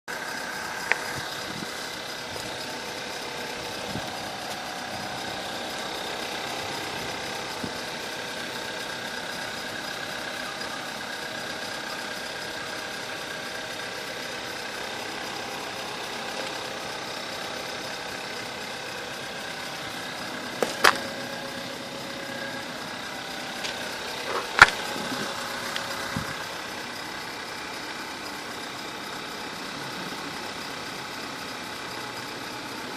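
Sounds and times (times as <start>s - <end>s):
car engine idling: 0.1s - 32.9s.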